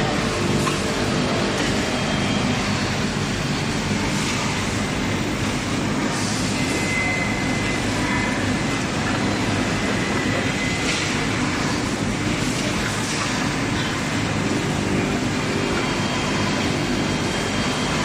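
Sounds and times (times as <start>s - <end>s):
grinding machine running: 0.0s - 18.0s
faint high whine: 0.9s - 12.4s.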